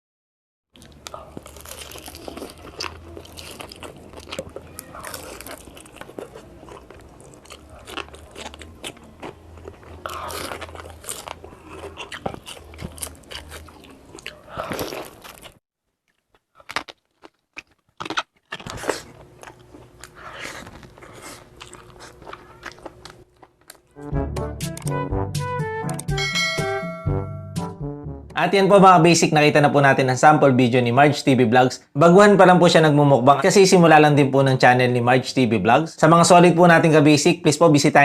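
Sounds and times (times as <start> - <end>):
chewing crunchy food: 0.8 - 23.9
music: 23.9 - 28.4.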